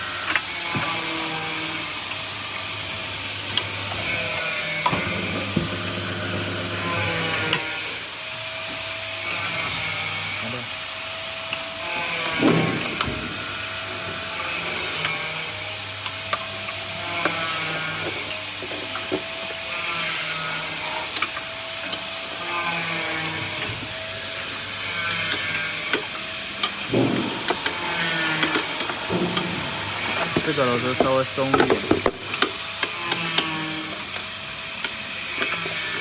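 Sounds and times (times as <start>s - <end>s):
machine motor humming: 2.4s - 7.7s, 25.4s - 32.4s.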